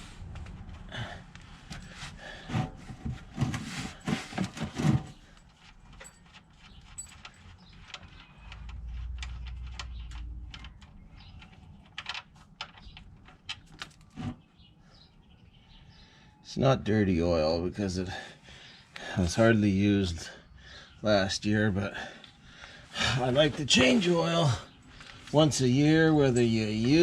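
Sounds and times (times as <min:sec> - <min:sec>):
metal tools clinking: 0:01.6 - 0:14.1, 0:23.1 - 0:27.0.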